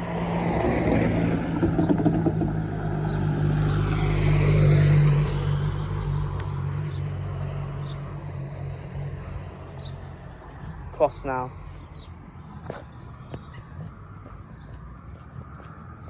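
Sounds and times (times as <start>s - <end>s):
vehicle engine passing: 0.0s - 16.0s.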